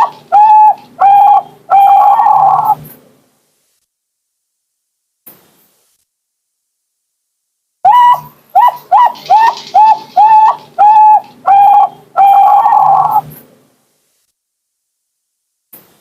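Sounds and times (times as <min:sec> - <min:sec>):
dove cooing: 0:00.0 - 0:02.9, 0:07.9 - 0:13.4.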